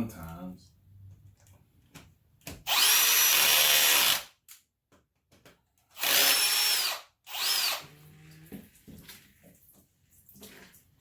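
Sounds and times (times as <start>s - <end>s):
power drill whining: 2.7s - 4.3s, 6.0s - 7.9s.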